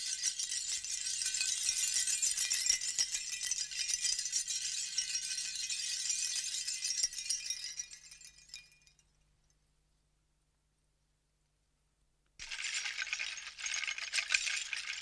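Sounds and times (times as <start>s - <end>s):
hand rattle shaken: 12.4s - 15.0s.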